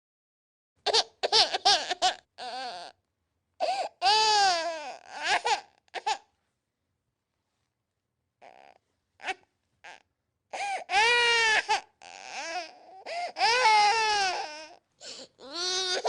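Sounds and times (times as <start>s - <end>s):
infant crying: 0.9s - 3.0s, 3.6s - 6.3s, 8.4s - 16.0s.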